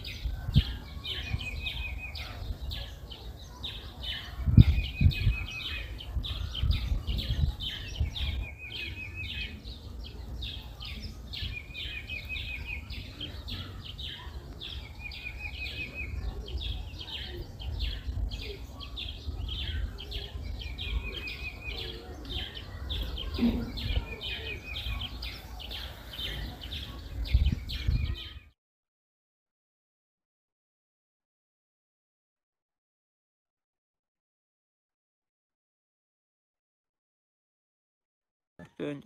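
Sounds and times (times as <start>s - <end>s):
wild birds chirping: 0.0s - 28.6s.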